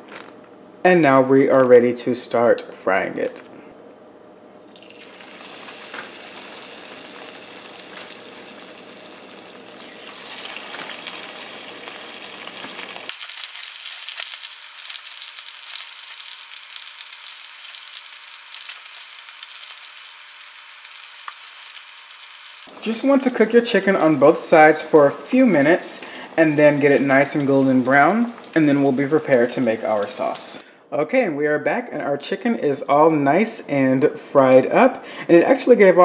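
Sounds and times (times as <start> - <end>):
chicken frying in hot oil: 4.6 - 30.6.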